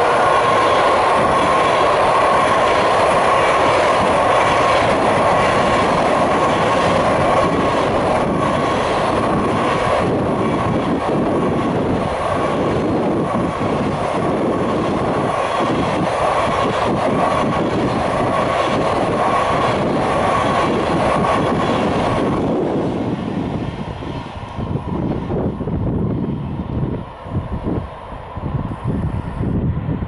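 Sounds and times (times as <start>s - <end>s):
freight train rolling past: 0.0s - 30.0s.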